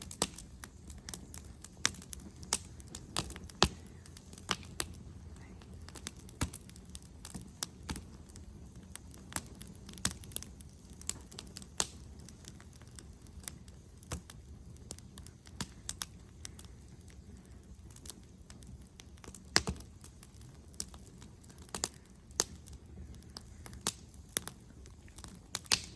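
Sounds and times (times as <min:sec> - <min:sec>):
bonfire crackling and popping: 0:00.0 - 0:25.9
low fire rumble: 0:00.0 - 0:25.9.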